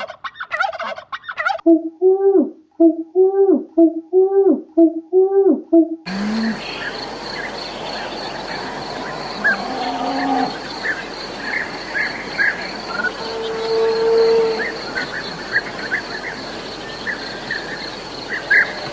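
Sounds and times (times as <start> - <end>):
high insect drone: 6.1 - 18.9
cattle mooing: 9.2 - 10.6.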